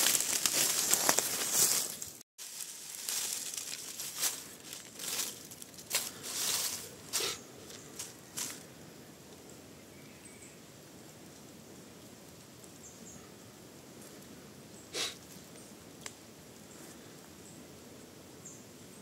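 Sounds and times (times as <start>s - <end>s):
rustling and crinkling handling noise: 0.0s - 8.6s
sharp crackles: 0.0s - 8.6s
faint outdoor background: 1.3s - 19.0s.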